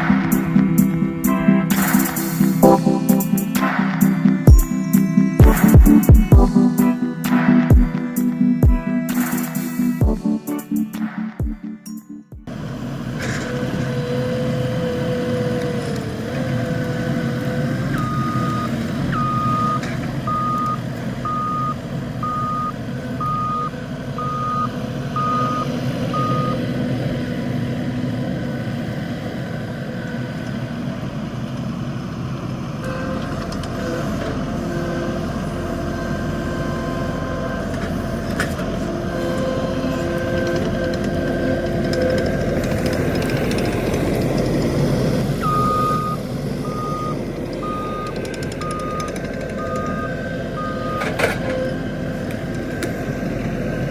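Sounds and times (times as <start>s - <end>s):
skid steer running: 0.0s - 11.6s, 12.4s - 53.9s
backup alarm beeping: 0.0s - 12.4s, 18.0s - 26.6s, 45.4s - 51.8s
machine whines: 0.0s - 20.8s.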